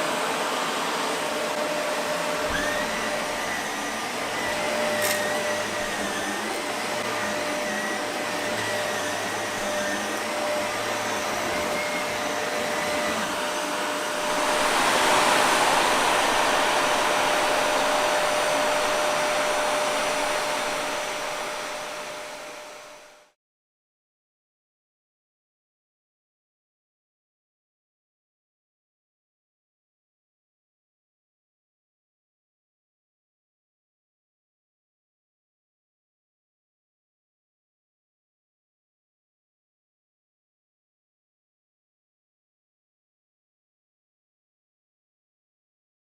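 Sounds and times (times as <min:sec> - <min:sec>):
vacuum cleaner running: 0:00.0 - 0:23.4.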